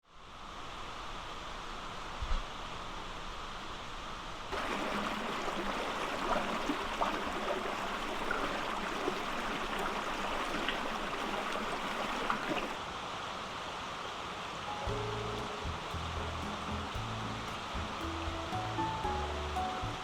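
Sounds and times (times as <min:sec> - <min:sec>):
water flowing with small splashes: 0:04.5 - 0:20.0.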